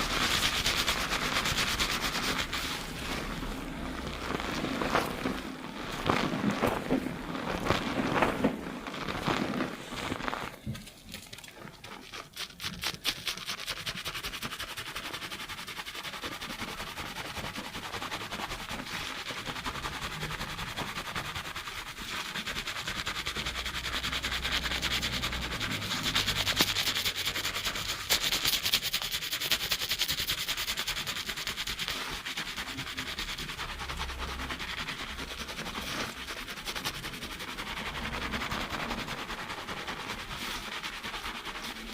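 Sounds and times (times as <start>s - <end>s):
fingers scrubbing lathered hair: 0.0s - 41.9s.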